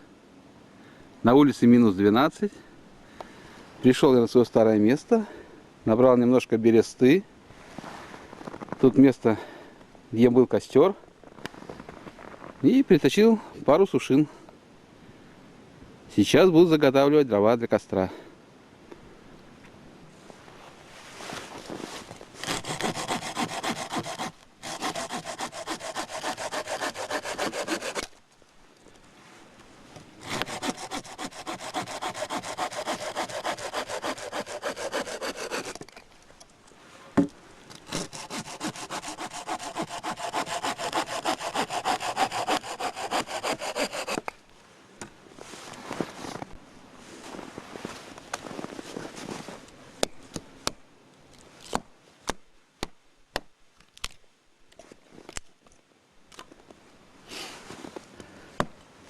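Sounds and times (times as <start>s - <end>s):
hand saw cutting wood: 22.4s - 28.1s, 30.2s - 35.9s, 37.9s - 44.3s.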